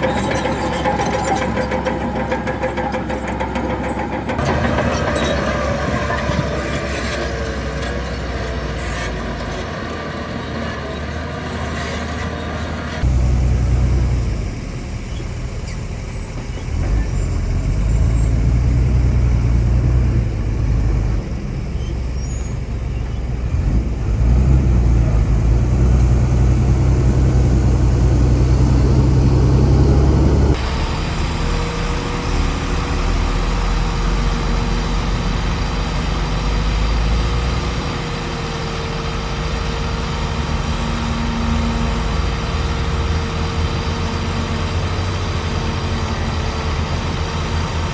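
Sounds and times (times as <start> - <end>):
diesel machinery engine rumble: 0.0 - 47.9.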